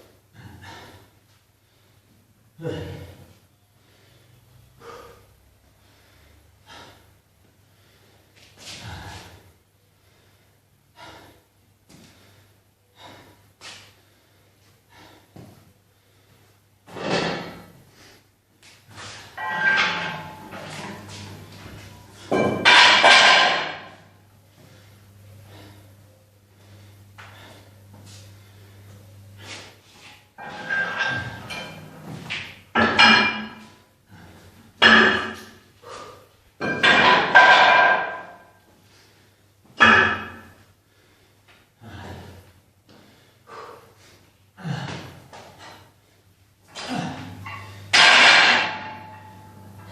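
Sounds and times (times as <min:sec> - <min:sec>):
low steady hum: 0:00.0 - 0:49.9
metal gym weights clanking: 0:19.0 - 0:24.0, 0:30.4 - 0:33.8, 0:34.8 - 0:35.6, 0:36.6 - 0:38.5, 0:39.8 - 0:40.5, 0:46.8 - 0:49.9.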